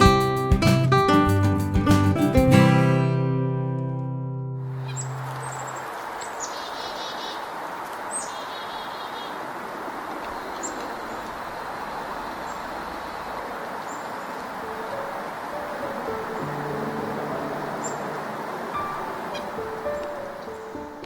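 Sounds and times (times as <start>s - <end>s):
chickadee calling: 4.8s - 9.5s, 10.2s - 11.5s, 12.2s - 21.0s.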